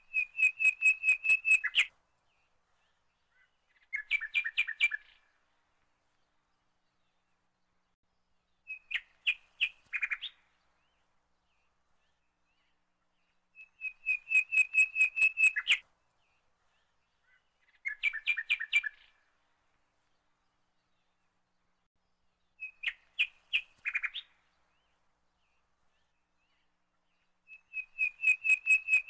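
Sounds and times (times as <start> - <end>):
small bird chirping: 0.0 - 1.9, 3.3 - 5.3, 8.6 - 11.0, 12.0 - 15.8, 17.2 - 19.2, 22.5 - 25.0, 25.6 - 29.0.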